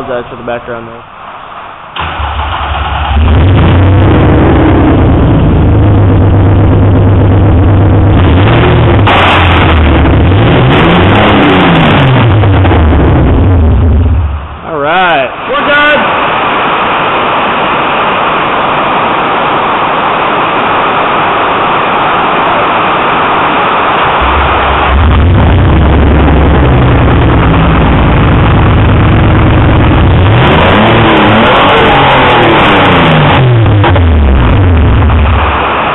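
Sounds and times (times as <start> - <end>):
car engine revving: 2.0 - 17.2, 23.4 - 35.9
car engine running loudly: 2.0 - 35.9
heavy rain on a metal roof: 15.6 - 35.9.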